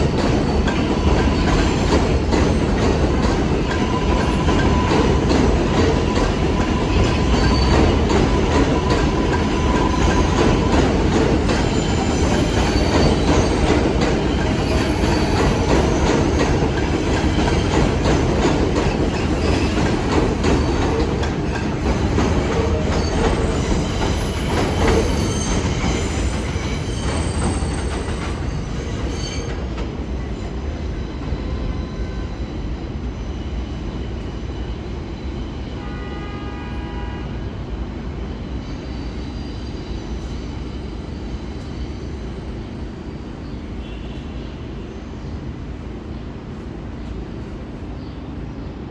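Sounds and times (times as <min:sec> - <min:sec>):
subway train rumbling: 0:00.0 - 0:48.9.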